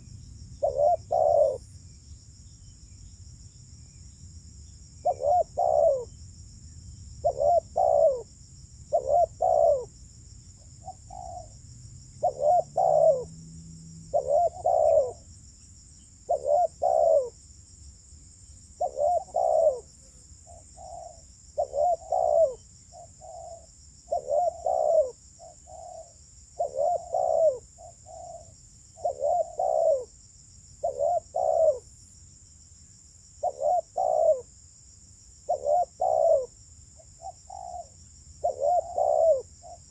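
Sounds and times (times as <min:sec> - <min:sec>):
dove cooing: 0:00.6 - 0:01.6, 0:05.0 - 0:06.1, 0:07.2 - 0:08.3, 0:08.9 - 0:09.9, 0:10.8 - 0:11.6, 0:12.2 - 0:13.3, 0:14.1 - 0:15.3, 0:16.3 - 0:17.4, 0:18.8 - 0:30.2, 0:30.8 - 0:31.9, 0:33.4 - 0:34.5, 0:35.5 - 0:39.9.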